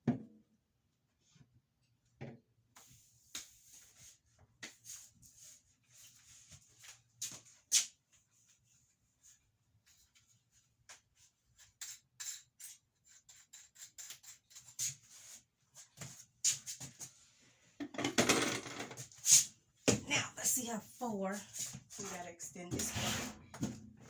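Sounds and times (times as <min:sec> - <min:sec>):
scraping rub: 0:21.6 - 0:24.0.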